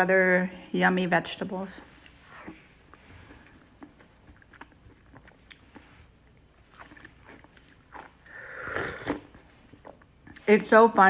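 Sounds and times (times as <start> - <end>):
person chewing food: 1.9 - 10.5.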